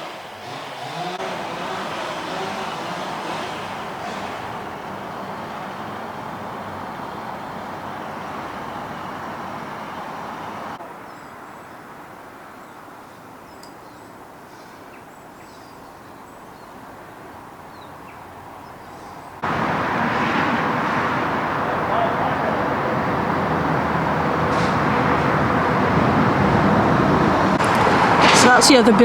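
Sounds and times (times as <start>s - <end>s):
distant road traffic hum: 0.0s - 29.0s
loud rush: 19.4s - 29.0s.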